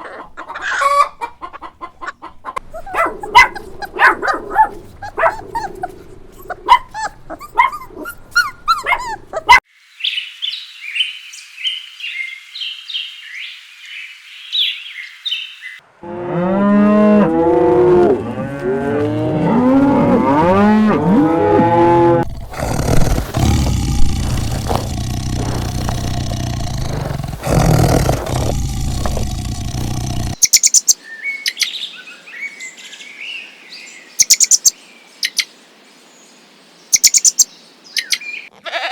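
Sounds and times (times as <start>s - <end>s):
rough roar-like sound: 16.0s - 30.4s
high chirping: 22.3s - 31.0s, 34.2s - 34.7s, 37.0s - 37.4s.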